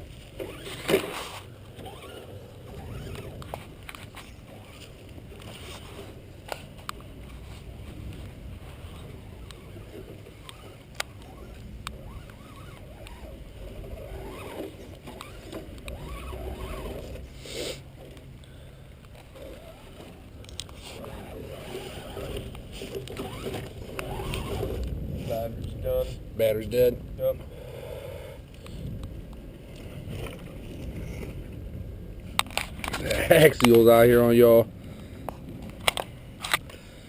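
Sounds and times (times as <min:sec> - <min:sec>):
toy truck electric motor whining: 0:09.3 - 0:17.8, 0:20.8 - 0:24.8.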